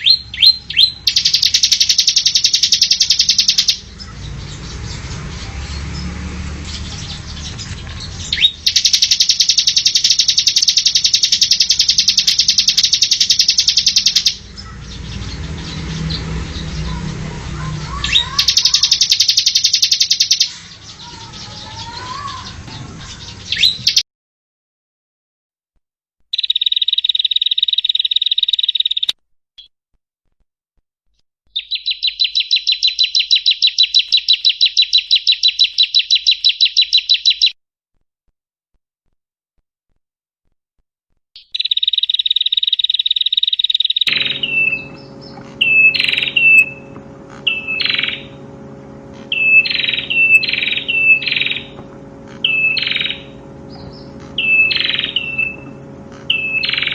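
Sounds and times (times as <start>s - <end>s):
narrow bird trill: 0.0s - 24.0s, 26.3s - 29.7s, 31.5s - 37.6s, 41.4s - 56.9s
songbirds chattering trills: 0.0s - 24.0s, 26.3s - 29.2s, 31.5s - 37.6s, 41.4s - 56.9s
low background hum: 0.1s - 24.0s, 44.0s - 56.9s.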